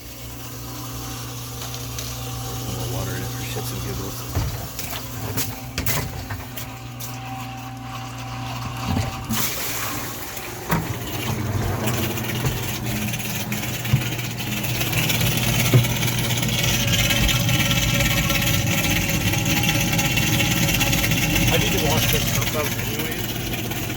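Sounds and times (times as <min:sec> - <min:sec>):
dishwasher pump motor humming: 0:00.0 - 0:23.9
water spraying and splashing: 0:09.3 - 0:23.2.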